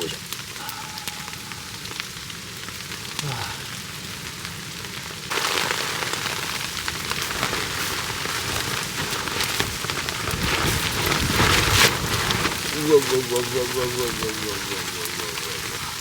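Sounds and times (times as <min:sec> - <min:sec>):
rain and hail falling: 0:00.0 - 0:16.0.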